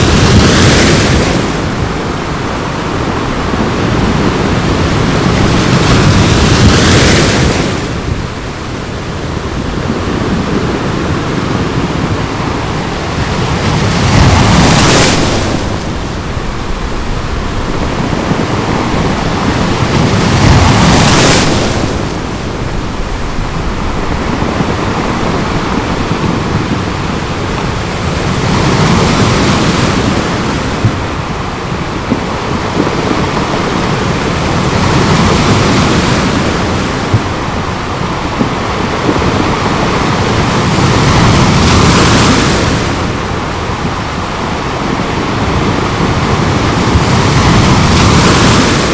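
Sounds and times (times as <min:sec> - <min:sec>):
ocean waves breaking: 0:00.0 - 0:48.9
water washing: 0:08.0 - 0:39.8.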